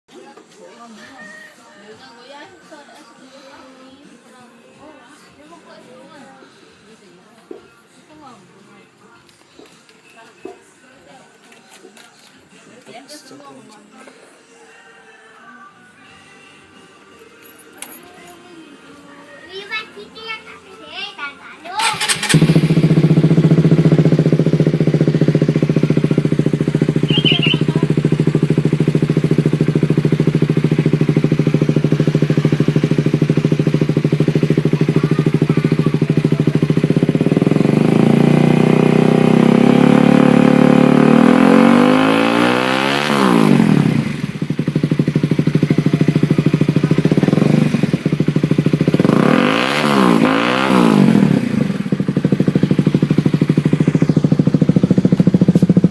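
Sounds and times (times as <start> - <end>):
motorcycle engine revving: 21.8 - 55.9
throttle blips: 27.0 - 28.0.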